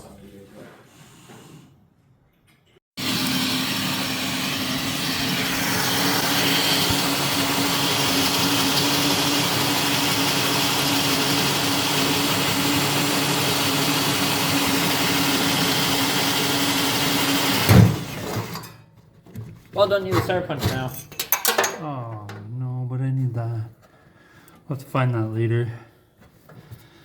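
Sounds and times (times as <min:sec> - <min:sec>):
electric drill running: 0:03.0 - 0:18.5.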